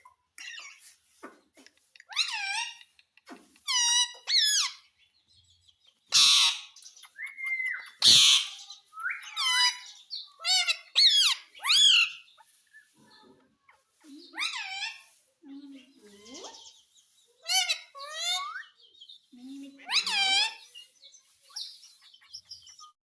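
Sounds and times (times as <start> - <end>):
parrot harsh screeches: 6.1 - 6.8, 8.0 - 8.7, 9.4 - 12.4, 14.4 - 15.2, 19.9 - 20.7
parrot whistled calls: 6.2 - 9.9.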